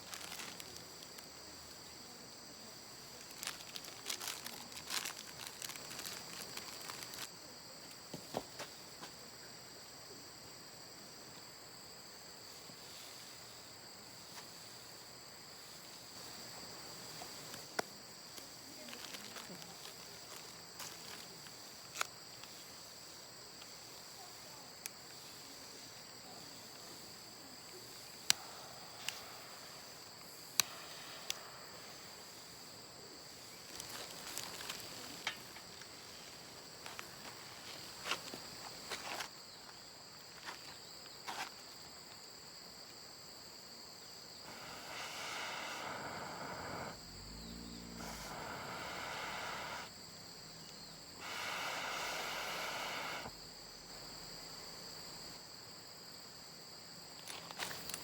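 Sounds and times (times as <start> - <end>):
crickets chirping: 0.0 - 58.0
rushing noise: 44.5 - 49.9.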